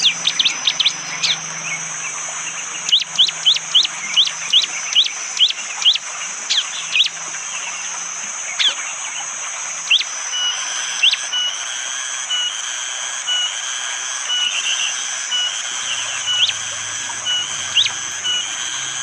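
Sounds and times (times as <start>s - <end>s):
bird chirping: 0.0s - 11.5s, 14.3s - 19.0s
forest ambience hiss: 0.0s - 19.0s.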